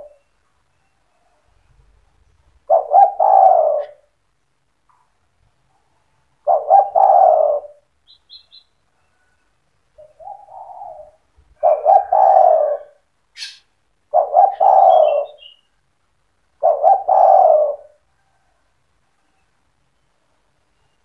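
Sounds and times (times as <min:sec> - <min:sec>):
dove cooing: 0:00.0 - 0:00.2, 0:02.6 - 0:04.1, 0:06.4 - 0:07.9, 0:10.0 - 0:13.5, 0:14.1 - 0:15.6, 0:16.5 - 0:18.7
faint high chirps: 0:00.0 - 0:02.4, 0:08.0 - 0:11.3, 0:18.0 - 0:21.0.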